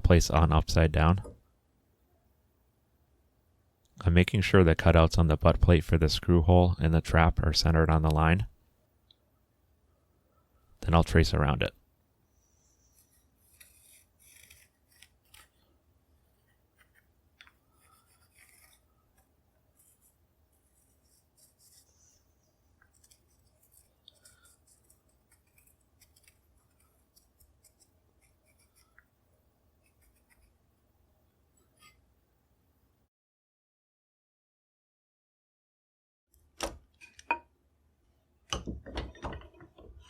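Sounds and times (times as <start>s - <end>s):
marking tool scratching: 12.6s - 15.6s, 16.3s - 22.2s, 22.8s - 29.0s, 29.8s - 30.6s.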